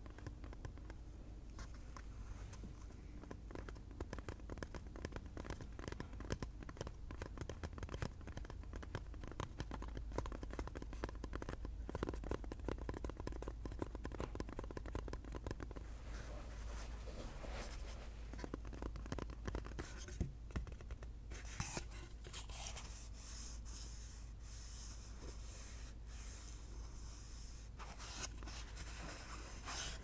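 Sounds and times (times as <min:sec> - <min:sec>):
fast tapping on hard object: 0:03.2 - 0:15.8, 0:18.4 - 0:21.1.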